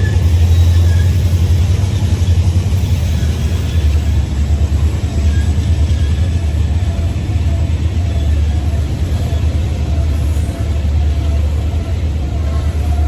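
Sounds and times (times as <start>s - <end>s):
thin wheel squeals: 0.0s - 2.0s, 2.8s - 4.2s
freight train wheels rumbling: 0.0s - 13.0s.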